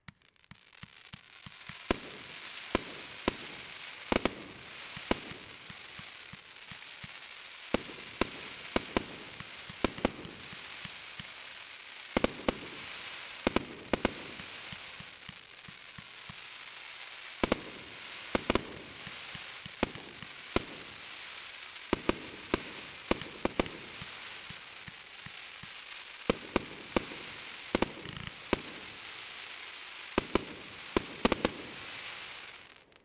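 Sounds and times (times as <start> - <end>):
fireworks crackling: 0.0 - 33.0
fireworks bangs: 1.1 - 32.9.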